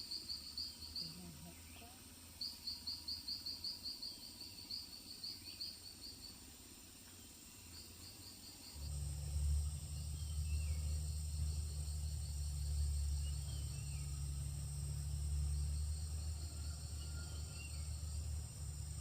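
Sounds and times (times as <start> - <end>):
insect chirping in pulses: 0.0 - 19.0
steady low rumble: 8.8 - 19.0.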